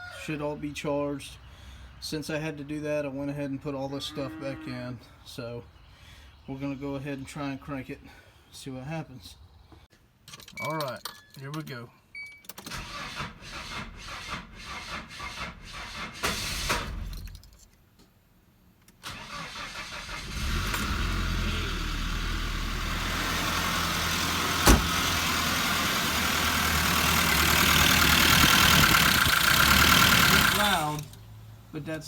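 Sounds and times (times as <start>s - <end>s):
engine cranking on starter: 12.7s - 17.3s, 19.0s - 31.3s
engine running loudly: 24.7s - 31.1s.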